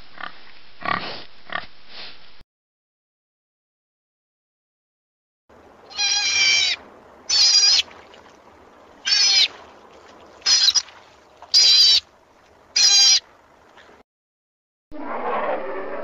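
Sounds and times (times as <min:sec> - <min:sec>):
animal high-pitched call: 0:05.9 - 0:07.9, 0:09.0 - 0:09.5, 0:10.4 - 0:10.9, 0:11.5 - 0:12.0, 0:12.8 - 0:13.2.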